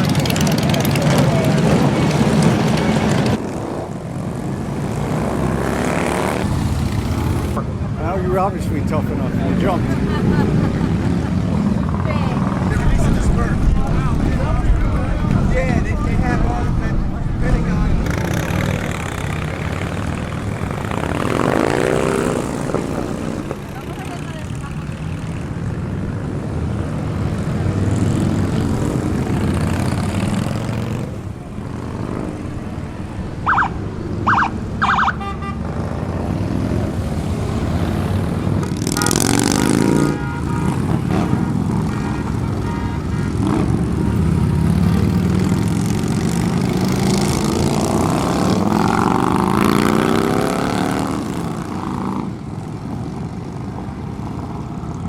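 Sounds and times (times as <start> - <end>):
motorcycles passing: 0.0 - 55.0
horn beeps: 33.4 - 35.7.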